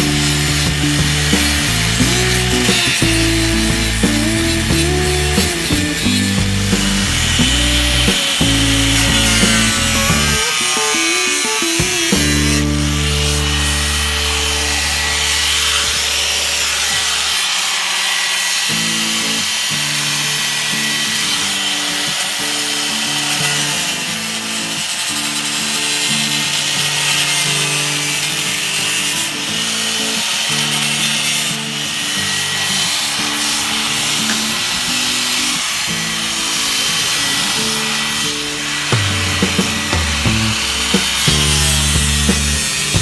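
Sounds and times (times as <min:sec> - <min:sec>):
background music with bass: 0:00.0 - 0:16.0, 0:38.9 - 0:43.0
power tool on sheet metal: 0:00.0 - 0:43.0.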